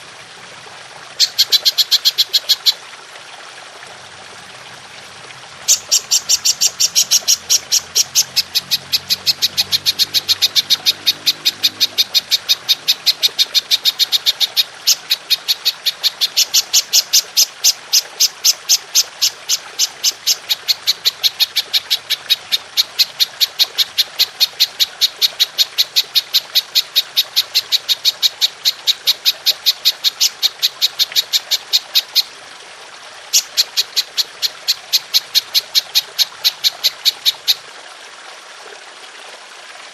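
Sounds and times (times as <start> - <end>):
water trickling: 0.0 - 39.9
grasshopper chirping: 5.7 - 17.1.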